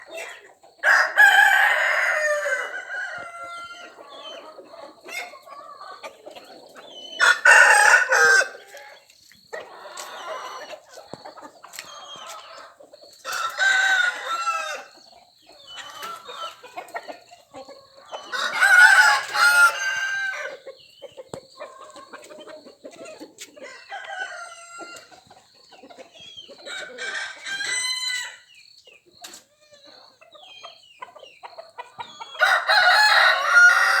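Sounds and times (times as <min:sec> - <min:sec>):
chickens clucking: 0:00.0 - 0:34.0
rooster crowing: 0:00.8 - 0:04.2, 0:07.2 - 0:08.6, 0:13.3 - 0:14.9, 0:18.2 - 0:20.6, 0:23.6 - 0:25.1, 0:26.7 - 0:28.4, 0:32.2 - 0:34.0.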